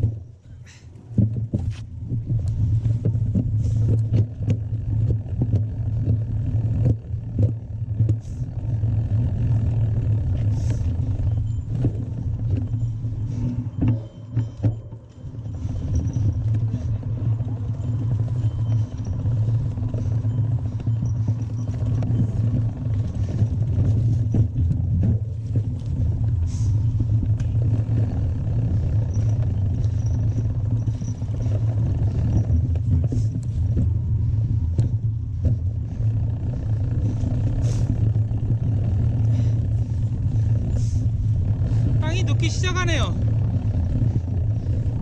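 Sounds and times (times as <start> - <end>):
bike knocks and clatters: 0.0 - 8.3
wind and tyre rumble: 0.0 - 45.0.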